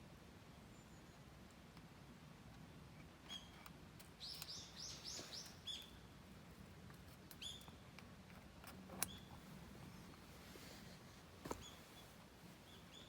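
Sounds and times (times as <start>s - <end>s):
faint bird chirps: 0.6s - 1.3s, 3.2s - 6.1s, 7.3s - 7.8s, 9.0s - 10.3s, 11.4s - 13.0s.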